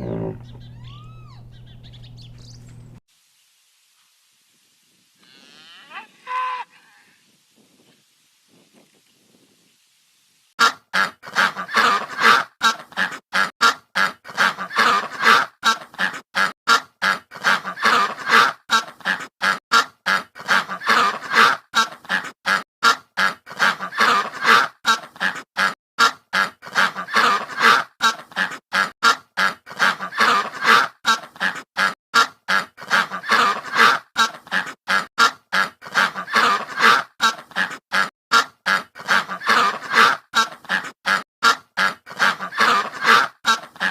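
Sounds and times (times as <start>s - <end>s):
waterfowl honking: 10.6s - 43.9s.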